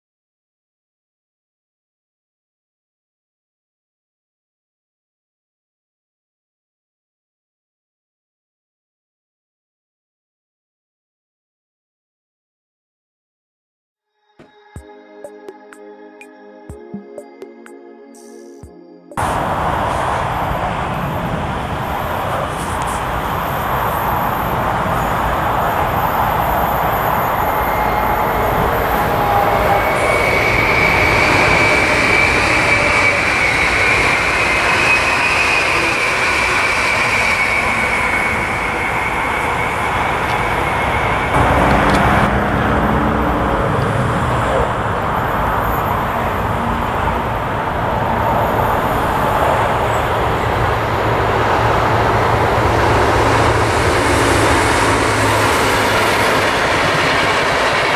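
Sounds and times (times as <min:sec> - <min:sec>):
diesel locomotive hum: 0:19.2 - 0:57.9
electric train passing with whine: 0:19.2 - 0:57.9.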